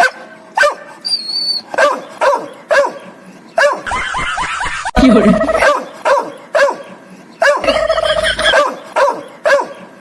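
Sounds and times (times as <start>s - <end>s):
dog barking: 0.0s - 1.0s, 1.7s - 3.9s, 5.6s - 7.8s, 8.4s - 9.9s.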